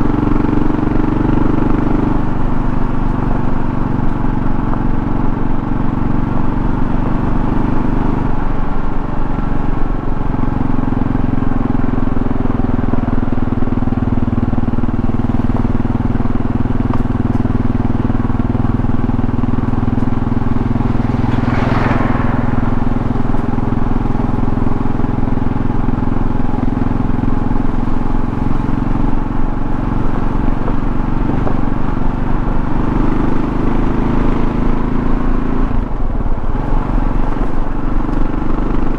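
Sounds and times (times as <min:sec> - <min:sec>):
motorcycle engine running: 0:00.0 - 0:38.9
road and wind noise: 0:00.0 - 0:38.9
brief rushing noise: 0:20.1 - 0:25.5.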